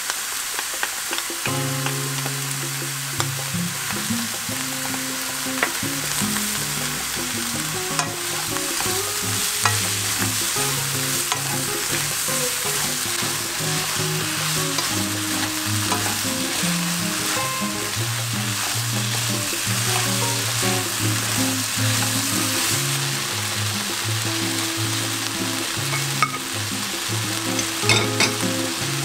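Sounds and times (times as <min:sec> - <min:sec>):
vegetables sizzling in oil: 0:00.0 - 0:29.0
spatula scraping and clicking pan: 0:07.9 - 0:21.3.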